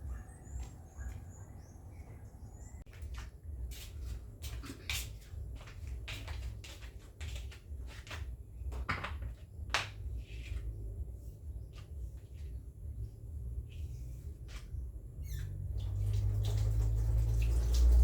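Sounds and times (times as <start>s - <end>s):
household items knocking and clicking: 8.7s - 10.0s.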